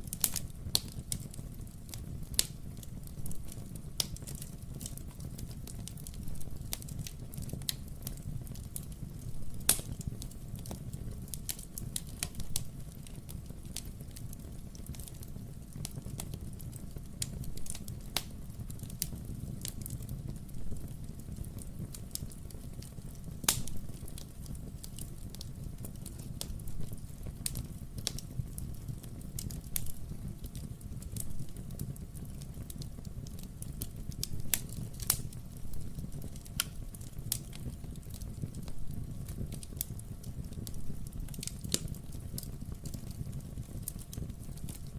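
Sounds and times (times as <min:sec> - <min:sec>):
fire low rumble: 0:00.0 - 0:44.9
fireplace crackling and popping: 0:00.0 - 0:44.9.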